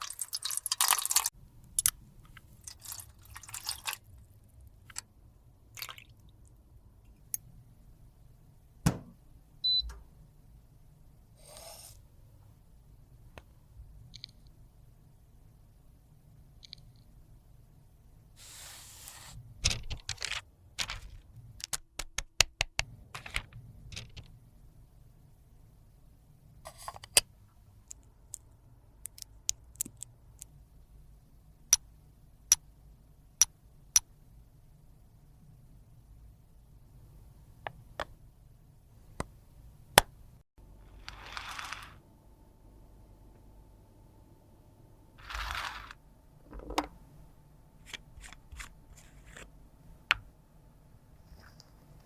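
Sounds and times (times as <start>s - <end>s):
brief scrape: 11.4s - 12.1s.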